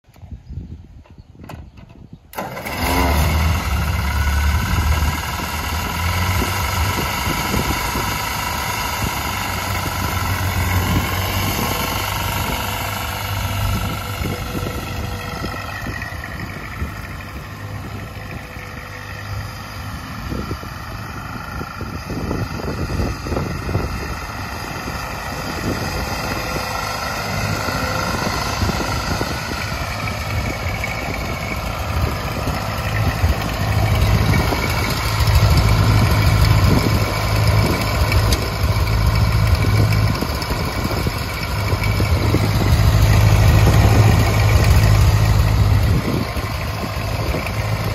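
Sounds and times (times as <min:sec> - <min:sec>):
tractor engine running: 0:01.4 - 0:47.9.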